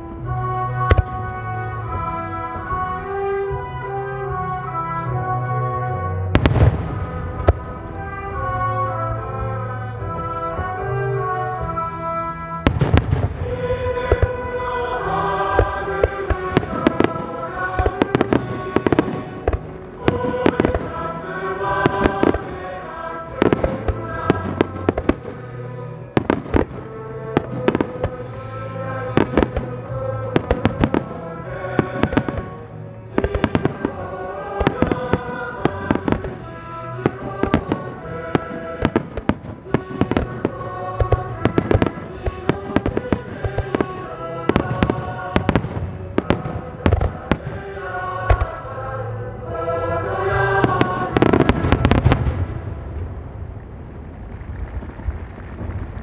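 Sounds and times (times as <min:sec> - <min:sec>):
music playing: 0:00.0 - 0:54.0
fireworks bangs: 0:06.3 - 0:08.2, 0:12.6 - 0:48.6, 0:50.5 - 0:56.0.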